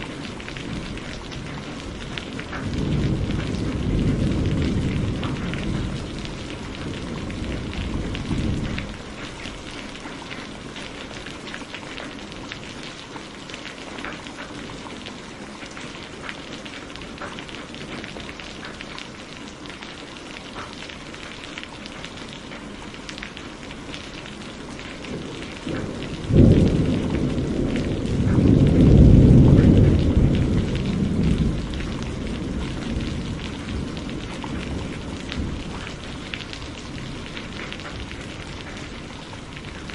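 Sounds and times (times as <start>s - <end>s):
thunder rumbling: 0.0s - 12.6s, 23.5s - 39.9s
steady rain: 0.0s - 39.9s
thunder crack: 0.6s - 9.0s, 25.0s - 39.9s.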